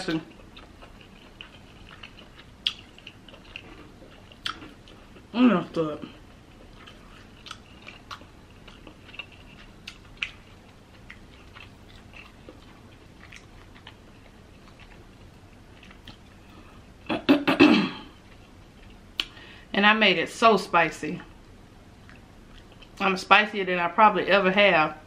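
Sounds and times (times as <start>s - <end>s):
chewing mouth clicks and smacks: 6.6s - 16.2s, 22.0s - 23.0s.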